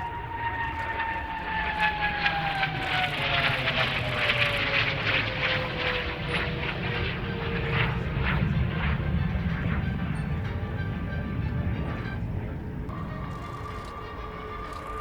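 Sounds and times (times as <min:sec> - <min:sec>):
jet engine roar with falling whine: 0:00.0 - 0:15.0.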